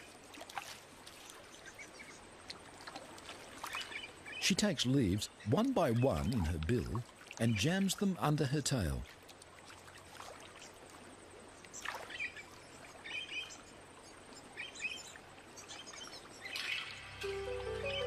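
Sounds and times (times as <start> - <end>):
soft wash of water: 0.0 - 4.4, 6.1 - 7.4, 8.8 - 16.6.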